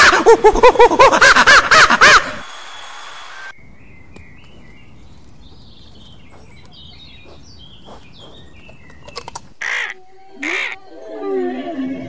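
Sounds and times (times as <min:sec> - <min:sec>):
small birds chirping: 0:03.6 - 0:10.6.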